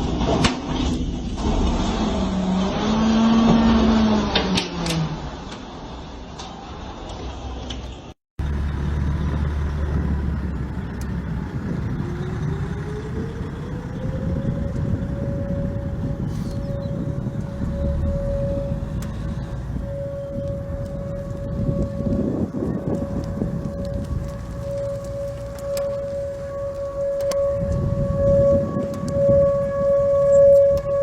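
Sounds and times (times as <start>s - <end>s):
heavy low rumble: 8.4s - 31.0s
warning siren winding up: 11.9s - 31.0s
wavering pitched sound: 12.0s - 31.0s.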